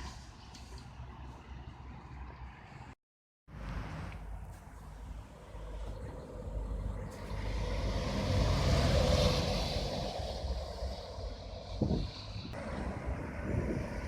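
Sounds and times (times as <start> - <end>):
vehicle passing: 3.6 - 14.0
wind on microphone: 5.9 - 14.0.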